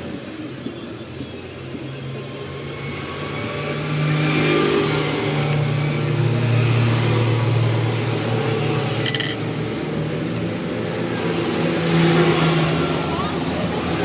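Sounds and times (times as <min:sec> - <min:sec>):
metallic clink: 0:09.0 - 0:09.4.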